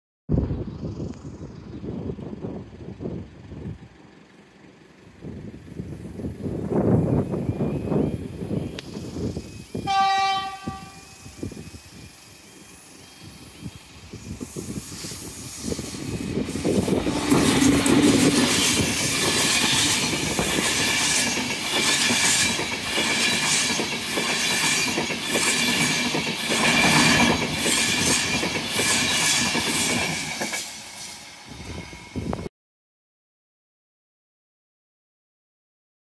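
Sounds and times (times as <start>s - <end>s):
train passing with rushing roar: 0.4s - 32.5s
wheel clickety-clack: 17.3s - 30.7s.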